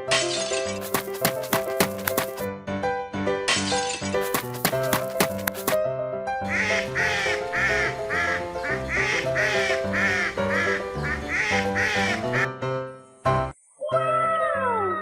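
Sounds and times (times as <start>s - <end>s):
background music: 0.0s - 15.0s
cartoon duck quacking: 6.5s - 12.5s.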